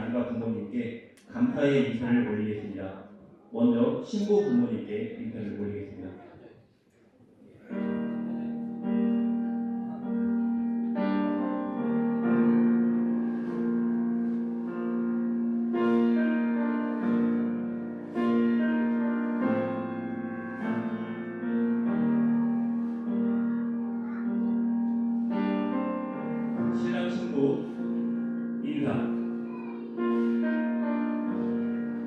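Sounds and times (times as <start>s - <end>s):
piano playing slow chords: 7.6s - 32.0s.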